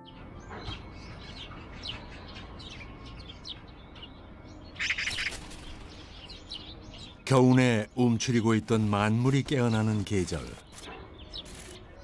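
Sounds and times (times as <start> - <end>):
birds chirping: 0.0 - 12.0
wings flapping: 4.8 - 6.1.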